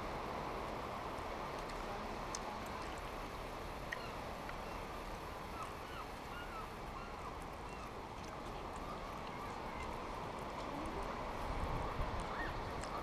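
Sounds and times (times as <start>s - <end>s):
birds crying: 5.5s - 8.0s.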